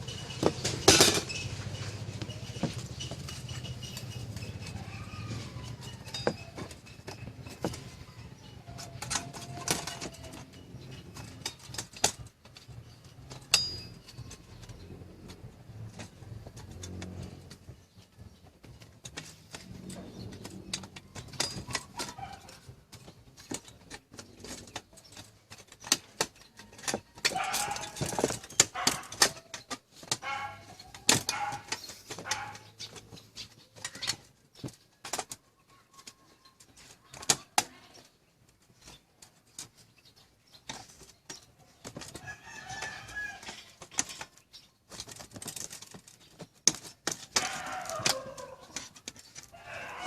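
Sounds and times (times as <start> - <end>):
small metal parts clattering: 0.0 - 50.0.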